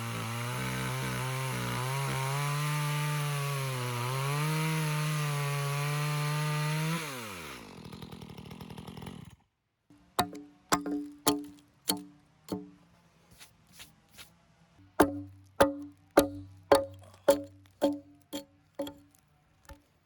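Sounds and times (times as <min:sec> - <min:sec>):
chainsaw running at high revs: 0:00.0 - 0:09.4
plucked guitar notes: 0:15.0 - 0:18.2.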